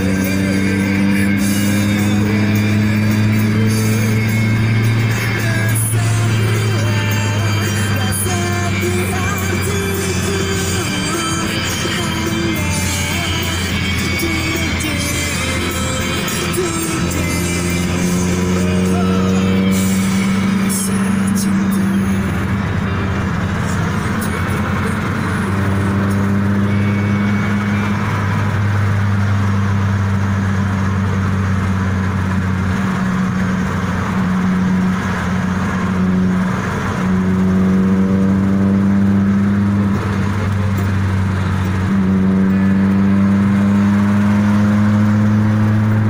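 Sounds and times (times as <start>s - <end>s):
car engine hum: 0.0s - 46.0s
road and tyre noise: 0.0s - 46.0s.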